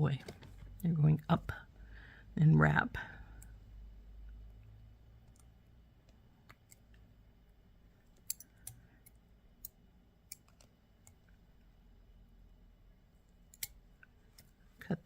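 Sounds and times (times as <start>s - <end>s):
pliers clicking on wire: 8.2s - 11.2s, 13.5s - 14.5s.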